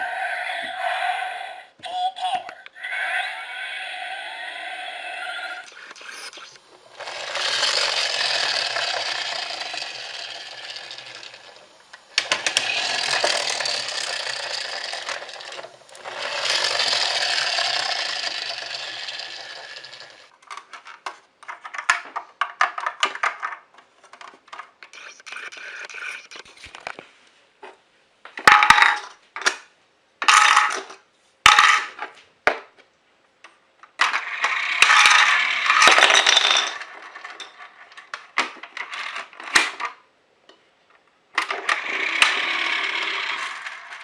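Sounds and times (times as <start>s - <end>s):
small electric motor whirring: 5.0s - 20.3s, 41.6s - 44.0s.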